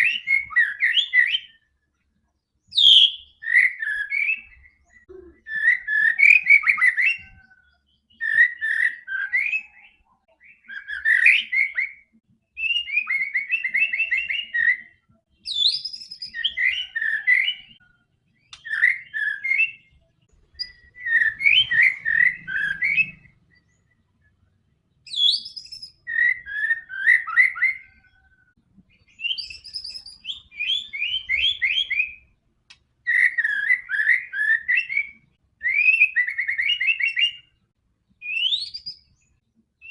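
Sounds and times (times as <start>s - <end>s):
bird singing whistled phrases: 0.0s - 1.7s, 2.6s - 17.8s, 18.4s - 24.0s, 25.1s - 28.4s, 29.0s - 32.3s, 33.1s - 37.6s, 38.2s - 39.9s.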